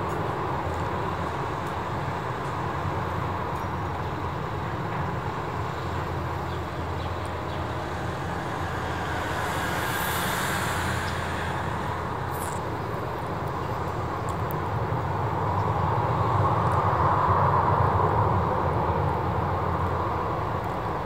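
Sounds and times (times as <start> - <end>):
traffic noise: 0.0 - 21.0
low engine rumble: 5.2 - 14.5.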